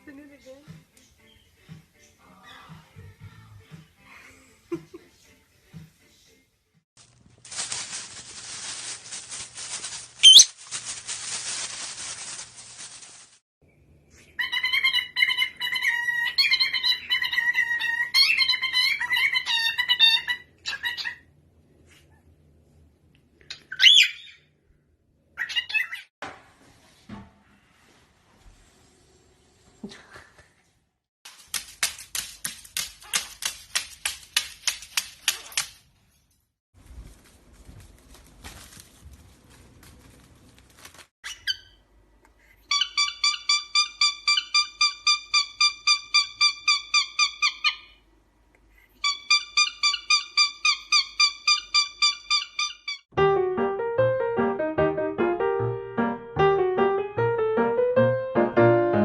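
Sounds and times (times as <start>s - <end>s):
dry rustling and rattling: 7.0s - 13.4s, 36.8s - 41.1s
parrot whistle: 10.2s - 10.5s.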